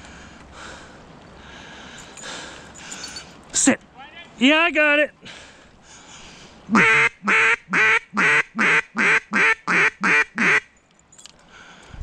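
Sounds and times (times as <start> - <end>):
duck quacking: 6.7 - 10.6.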